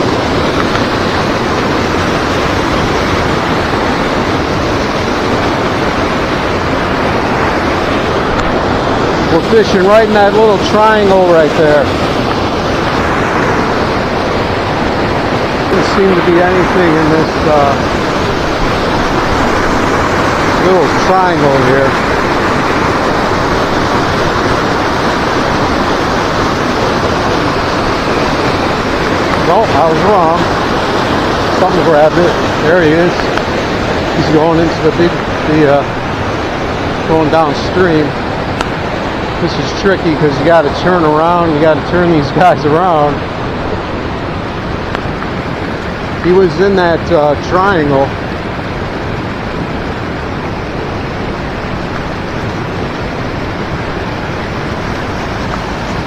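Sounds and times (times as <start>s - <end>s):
river water rushing and churning: 0.0s - 56.0s.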